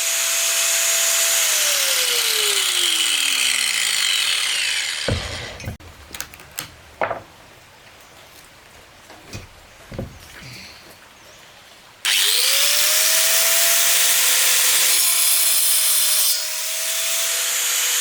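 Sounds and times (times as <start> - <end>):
saw motor spinning down: 0.0 - 5.7, 12.1 - 13.8
power saw cutting wood: 0.0 - 5.8, 12.1 - 18.0
wood knocking: 5.1 - 7.4, 9.3 - 10.3.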